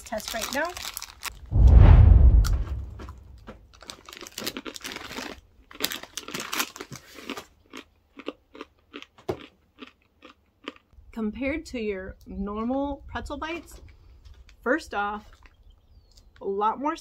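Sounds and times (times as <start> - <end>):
plastic bag crinkling: 0.0 - 1.3, 3.8 - 7.4
wind gust on microphone: 1.4 - 3.4
crunchy snack chewing: 3.8 - 10.9.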